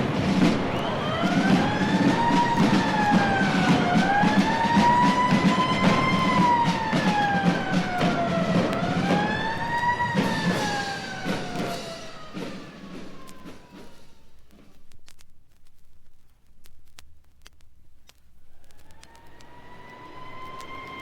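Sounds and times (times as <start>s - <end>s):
emergency vehicle siren wailing: 0.0s - 14.3s, 18.5s - 21.0s
vinyl pops and crackle: 0.0s - 21.0s.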